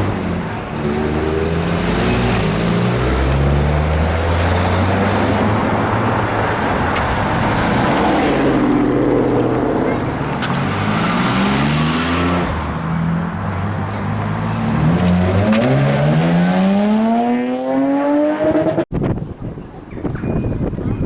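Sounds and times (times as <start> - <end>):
vehicle engines accelerating: 0.0 - 18.9
wind noise on microphone: 18.3 - 21.0.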